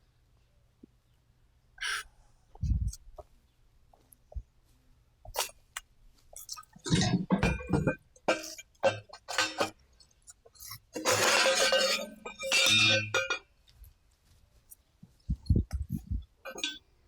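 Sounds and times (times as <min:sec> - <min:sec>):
metal objects clinking and rattling: 0:06.4 - 0:09.8, 0:10.6 - 0:13.4, 0:16.5 - 0:16.8.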